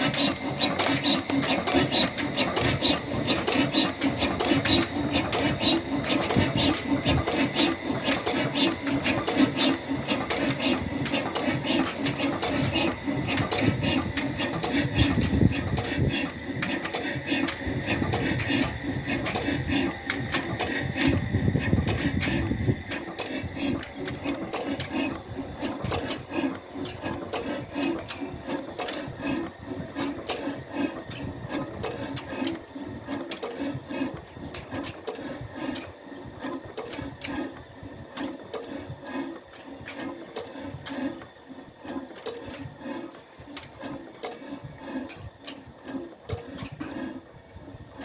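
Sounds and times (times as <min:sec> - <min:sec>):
sharp mechanical clicks: 0:00.0 - 0:48.0
stationary engine chugging: 0:00.0 - 0:48.0.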